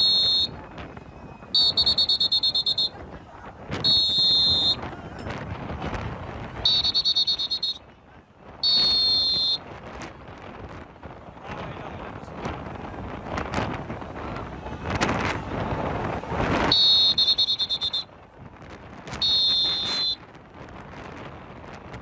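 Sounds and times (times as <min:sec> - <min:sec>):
shrill whistle blasts: 0:00.0 - 0:00.6, 0:01.6 - 0:03.0, 0:03.8 - 0:04.9, 0:06.6 - 0:07.8, 0:08.6 - 0:09.6, 0:16.7 - 0:18.1, 0:19.2 - 0:20.2
wind on microphone: 0:00.0 - 0:22.0.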